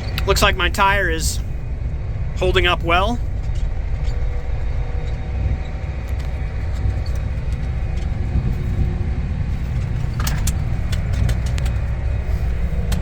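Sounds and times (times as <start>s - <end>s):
tractor engine rumbling: 0.0s - 13.0s
light clicks and rattles: 3.3s - 13.0s.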